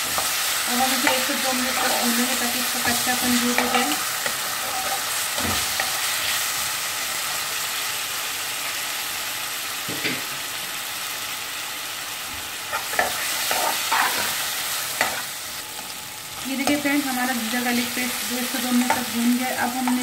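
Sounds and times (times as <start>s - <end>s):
onions sizzling in hot oil: 0.0s - 20.0s
metal ladle scraping a pan: 3.6s - 6.0s, 12.7s - 14.4s.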